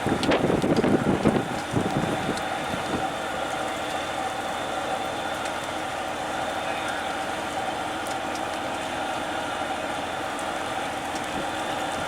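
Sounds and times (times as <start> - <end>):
wind gusting on microphone: 0.0 - 3.2
engine running steadily: 0.0 - 12.0.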